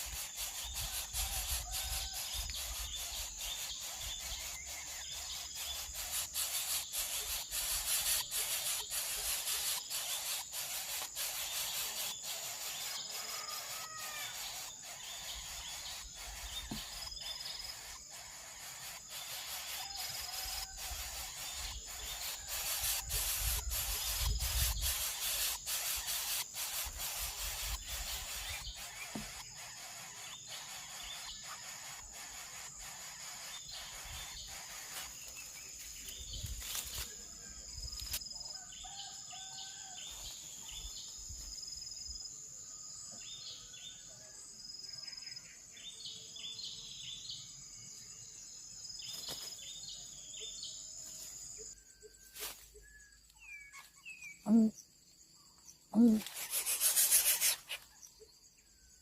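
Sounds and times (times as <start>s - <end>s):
high-pitched insect drone: 0.0s - 42.8s, 55.9s - 59.0s
bird chirps: 0.0s - 59.0s.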